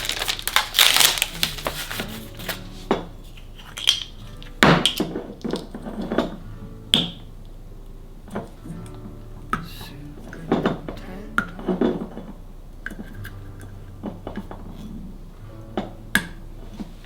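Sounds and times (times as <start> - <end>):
dishes knocking and clinking: 9.5 - 13.2.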